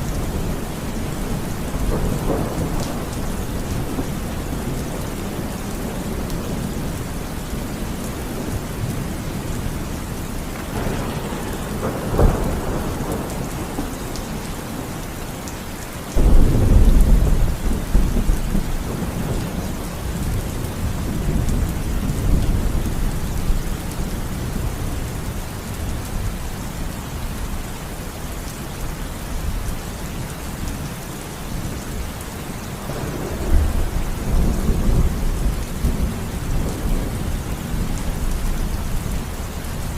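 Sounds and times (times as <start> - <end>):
steady rain: 0.0 - 39.9
thunder rolling and cracking: 0.1 - 7.0, 10.4 - 15.2, 16.1 - 23.6, 32.8 - 38.8
loud thunderclap: 10.5 - 14.9, 16.2 - 22.8, 32.8 - 38.3.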